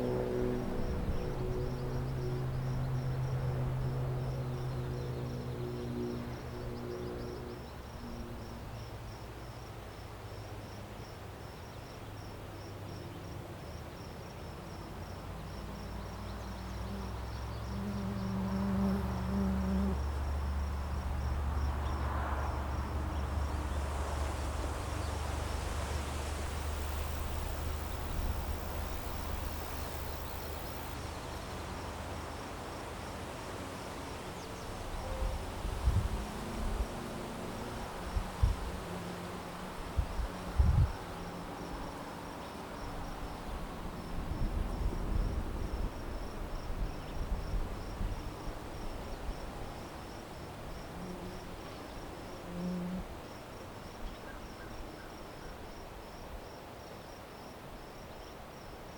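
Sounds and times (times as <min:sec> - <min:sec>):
low steady hum: 0:00.0 - 0:09.9, 0:14.6 - 0:41.9
insects chirping: 0:00.0 - 0:58.9.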